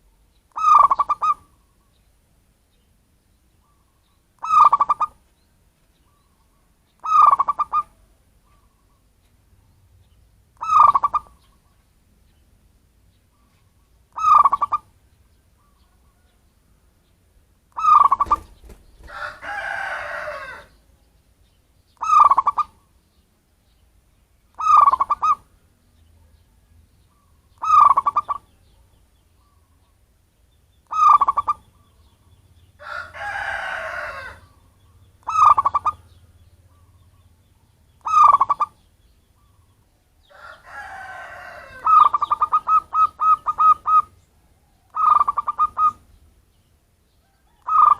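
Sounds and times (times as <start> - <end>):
dove cooing: 0.5 - 1.6, 3.6 - 5.2, 7.0 - 9.0, 10.6 - 11.8, 13.4 - 14.9, 17.8 - 20.8, 22.0 - 22.9, 24.6 - 25.5, 27.1 - 28.5, 30.9 - 32.0, 32.8 - 37.2, 38.0 - 38.8, 40.3 - 44.2, 44.9 - 46.1, 47.5 - 47.9.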